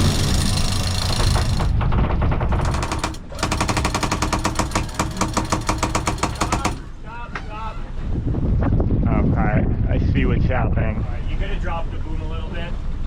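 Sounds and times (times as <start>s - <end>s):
winch pawls clicking: 0.0s - 6.9s
boat engine running: 0.0s - 7.0s.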